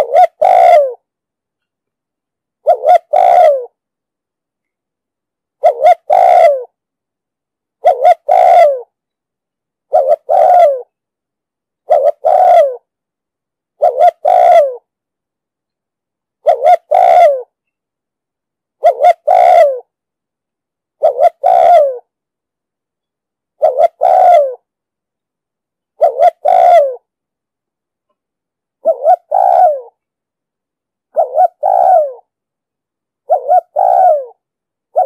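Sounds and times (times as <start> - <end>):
dove cooing: 0.0 - 1.0, 2.6 - 3.8, 5.6 - 6.8, 7.8 - 8.9, 9.9 - 10.9, 11.8 - 12.9, 13.8 - 14.9, 16.4 - 17.5, 18.8 - 19.9, 21.0 - 22.1, 23.6 - 24.7, 26.0 - 27.1, 28.8 - 30.0, 31.1 - 32.3, 33.2 - 35.0.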